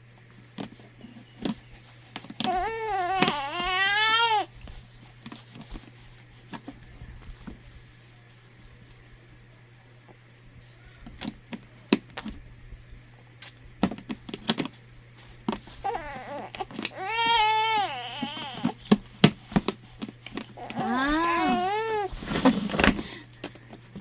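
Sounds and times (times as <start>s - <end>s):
baby crying: 2.4s - 4.5s, 15.8s - 18.8s, 20.6s - 22.1s.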